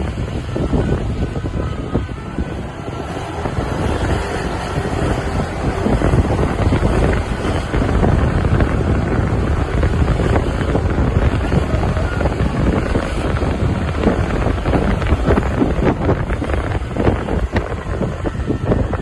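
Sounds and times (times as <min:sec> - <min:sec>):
road and traffic noise: 0:00.0 - 0:19.0
wind buffeting microphone: 0:00.0 - 0:19.0.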